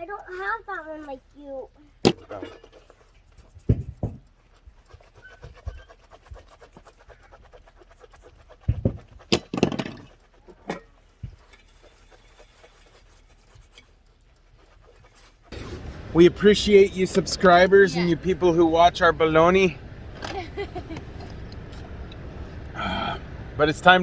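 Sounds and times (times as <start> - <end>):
knocks and thumps: 3.6 - 4.3, 8.6 - 11.4
rustling scrape: 10.0 - 16.2.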